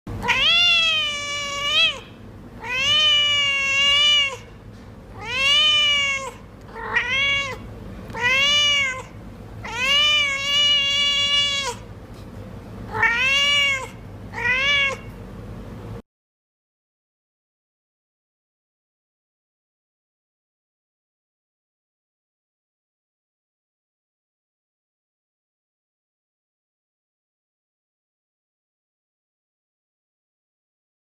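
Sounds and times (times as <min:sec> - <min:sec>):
cat meowing: 0:00.2 - 0:04.5, 0:05.1 - 0:11.9, 0:12.9 - 0:15.1.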